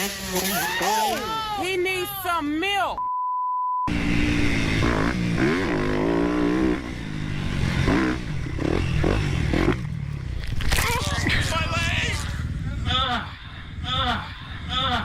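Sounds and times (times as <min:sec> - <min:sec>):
dirt bike engine revving: 0:00.0 - 0:01.4, 0:03.9 - 0:13.0
short electronic beep: 0:03.0 - 0:03.9.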